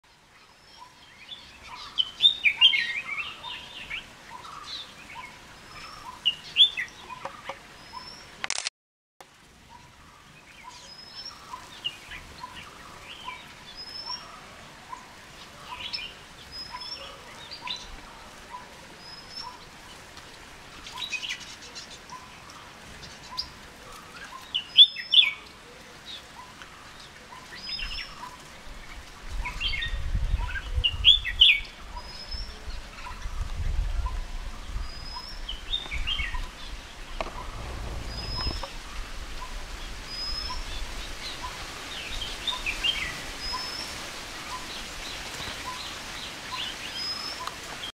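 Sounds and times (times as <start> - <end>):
songbirds chirping: 0.1 - 8.4, 9.3 - 47.9
low rumble: 37.2 - 39.5.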